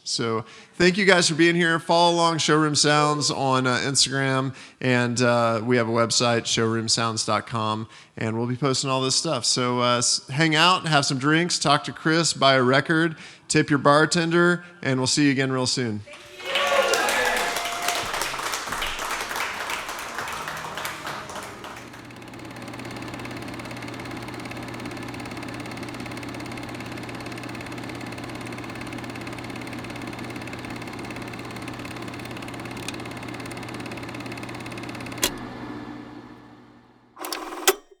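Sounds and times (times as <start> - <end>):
people clapping: 16.1 - 23.1
low machine hum: 16.6 - 37.6
single click: 35.2 - 35.5, 37.2 - 38.0.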